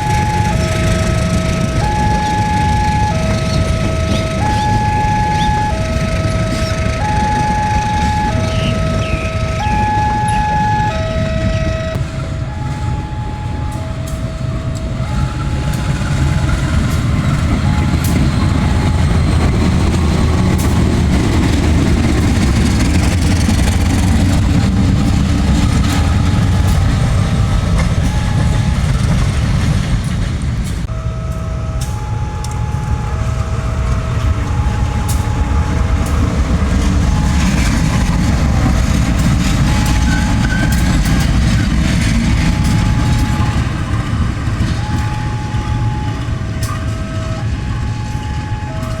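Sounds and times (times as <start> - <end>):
two-tone crossing warning chime: 0.0 - 29.8, 30.8 - 49.0
train engines and wheels rumbling: 0.0 - 49.0.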